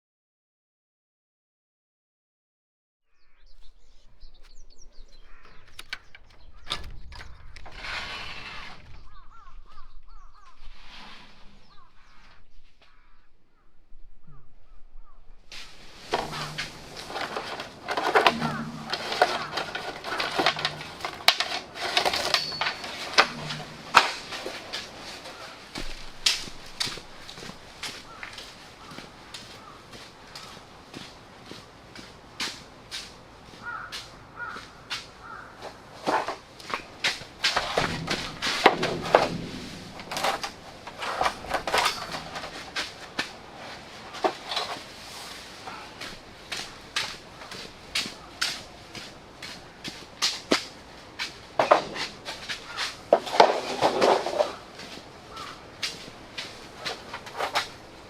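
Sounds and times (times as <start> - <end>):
sharp clicks and knocks: 3.5 - 9.3, 16.1 - 29.0, 36.1 - 44.8
handling rustling: 3.5 - 10.2, 15.6 - 29.8, 36.1 - 58.0.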